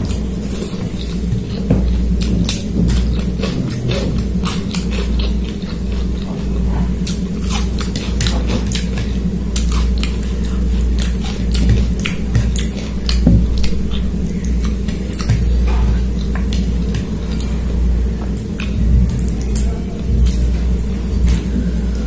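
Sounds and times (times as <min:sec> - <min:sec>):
person chewing food: 0:00.0 - 0:22.0
steady low hum: 0:00.0 - 0:22.0
wet mouth clicks and smacks: 0:18.3 - 0:20.4.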